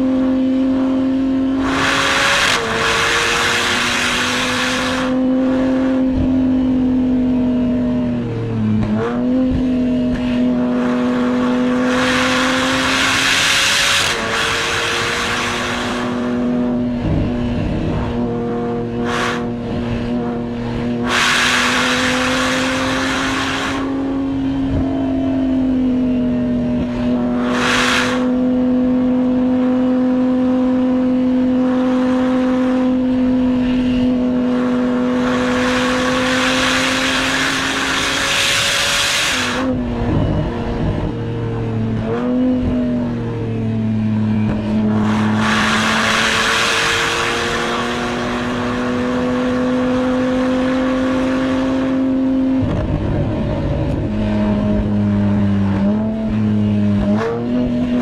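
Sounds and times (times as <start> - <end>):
car engine from inside cabin: 0.0 - 58.0
rushing noise: 10.2 - 24.6, 26.6 - 28.4, 43.0 - 49.7.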